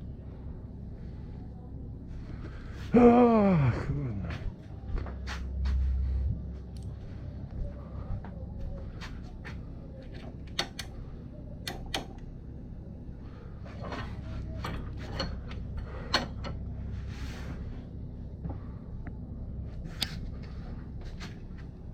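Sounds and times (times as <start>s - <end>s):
low hum: 0.0s - 21.9s
metallic clicks of hand tools: 10.5s - 11.0s, 11.6s - 12.2s.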